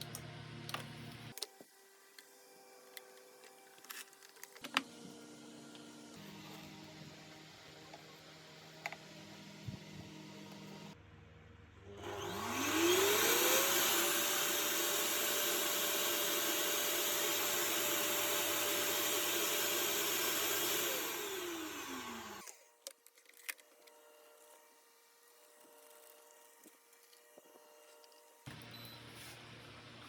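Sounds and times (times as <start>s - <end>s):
vacuum cleaner motor whine: 0.0s - 11.0s, 11.8s - 22.8s.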